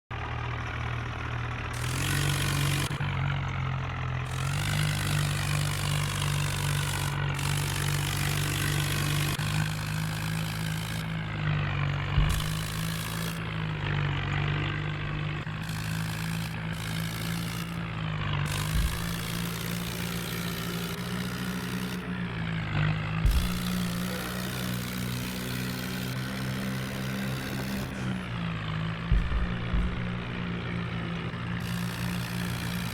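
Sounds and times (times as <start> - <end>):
tractor engine running: 0.1 - 32.9
short low knocks: 12.1 - 13.0, 23.3 - 24.0, 29.1 - 31.4.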